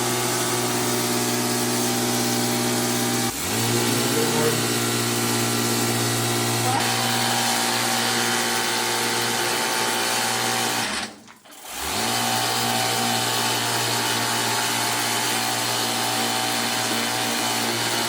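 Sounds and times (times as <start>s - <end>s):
pressure washer spraying: 0.0s - 7.8s.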